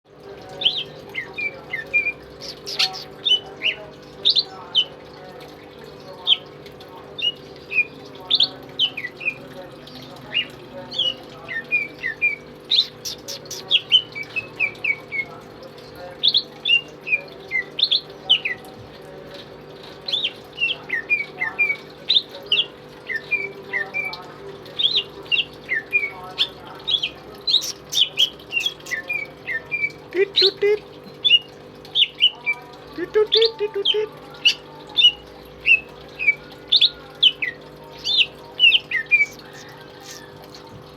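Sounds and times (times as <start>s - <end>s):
bird singing whistled notes: 38.0s - 40.8s.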